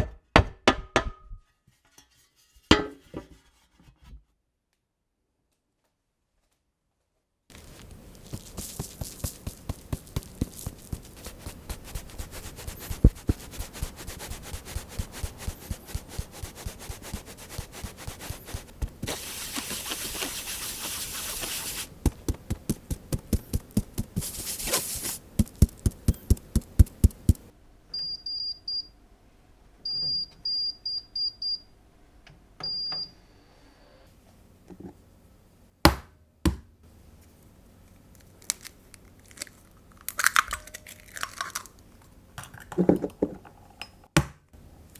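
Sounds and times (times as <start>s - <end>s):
flour sieve rustling: 7.5s - 27.5s
oven panel high beeps: 28.0s - 28.9s, 29.9s - 31.7s, 32.6s - 33.2s.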